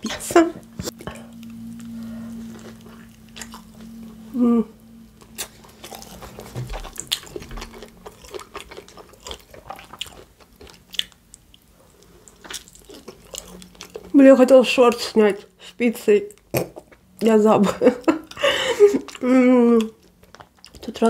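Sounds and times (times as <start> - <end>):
person humming: 0.0 - 7.8
low steady hum: 0.0 - 21.0
chewing with wet mouth clicks: 5.2 - 14.2, 19.8 - 21.0.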